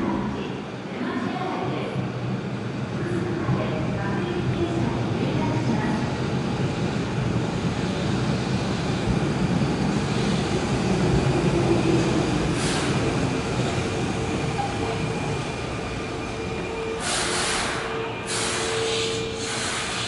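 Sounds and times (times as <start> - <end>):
train rumbling to a stop: 0.0 - 20.0.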